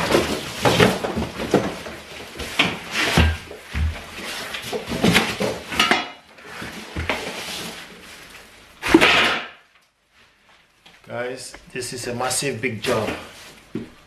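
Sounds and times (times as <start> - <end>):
furniture parts clattering: 0.0 - 8.2.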